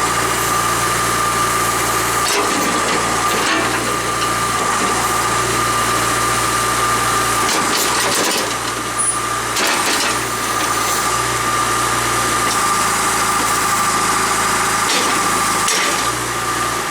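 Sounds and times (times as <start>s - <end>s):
diesel engine running: 0.0s - 16.9s.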